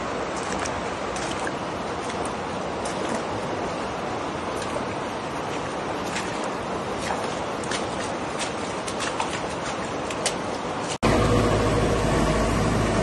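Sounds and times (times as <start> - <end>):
faint splashes: 0.0 - 11.0
floodwater rushing: 0.0 - 13.0.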